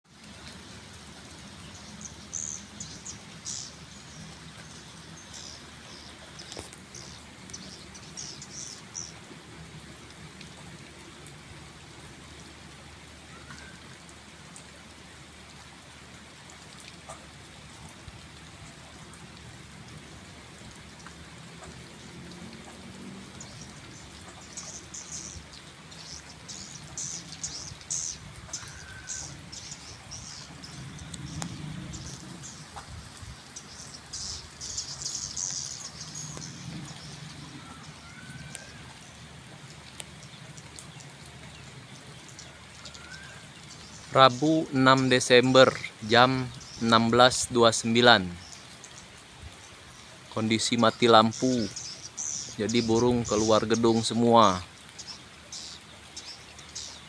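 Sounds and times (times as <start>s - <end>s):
steady rain falling: 0.0s - 57.0s
bird twittering: 33.6s - 38.8s, 51.3s - 53.7s.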